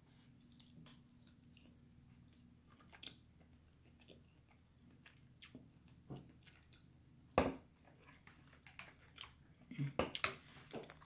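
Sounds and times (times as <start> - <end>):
faint chewing mouth sounds: 0.2 - 6.9.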